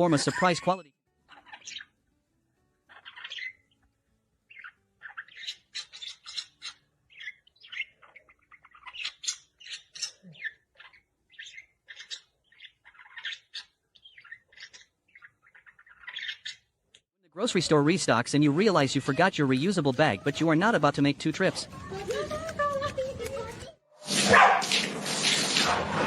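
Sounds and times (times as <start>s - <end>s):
bird chirping: 1.2s - 2.0s, 2.9s - 16.8s.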